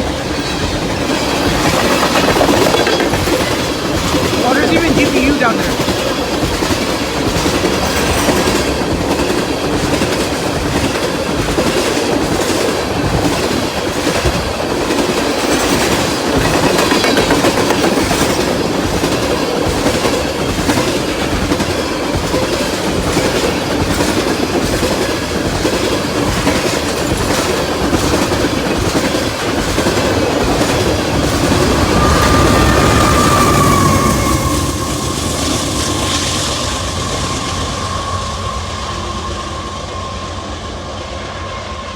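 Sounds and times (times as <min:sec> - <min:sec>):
train wheels clattering: 0:00.0 - 0:40.1
high wheel squeal: 0:31.2 - 0:41.9.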